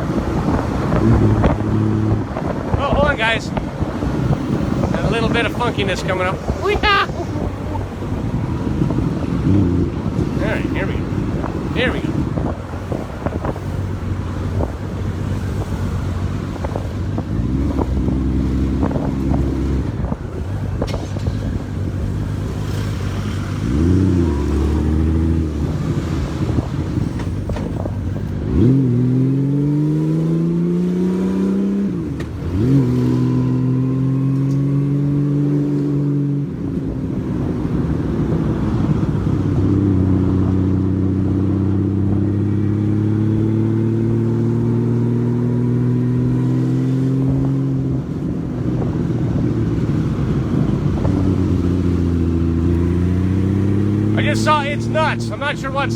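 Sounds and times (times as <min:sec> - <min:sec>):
motorcycle engine accelerating: 0:03.6 - 0:11.7, 0:12.3 - 0:26.8, 0:37.7 - 0:55.0.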